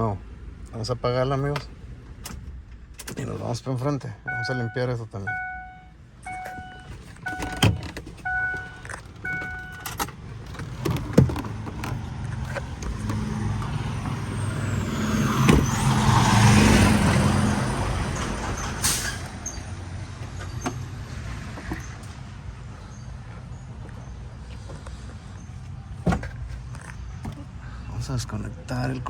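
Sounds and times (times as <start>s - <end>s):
vehicle passing by: 12.0s - 23.6s.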